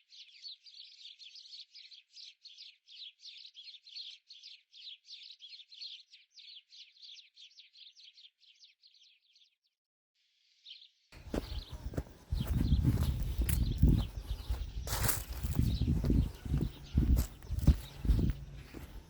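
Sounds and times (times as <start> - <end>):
falling bird chirps: 11.2 - 19.0.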